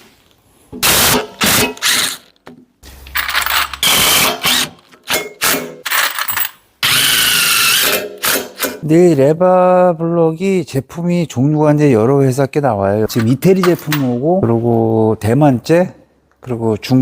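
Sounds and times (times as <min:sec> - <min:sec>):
metal clanking and scraping: 0:03.0 - 0:03.9.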